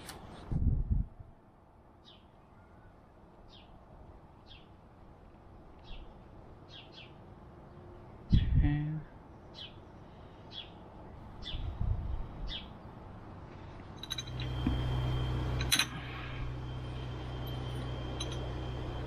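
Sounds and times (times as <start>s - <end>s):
bird chirping: 5.8s - 8.6s, 9.3s - 10.8s
thin high whine: 14.0s - 19.0s.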